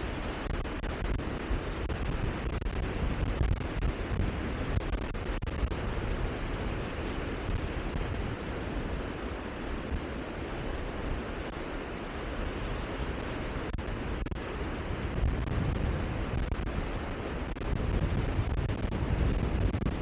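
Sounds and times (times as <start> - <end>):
rushing wind: 0.0 - 20.0
wind buffeting microphone: 0.0 - 20.0.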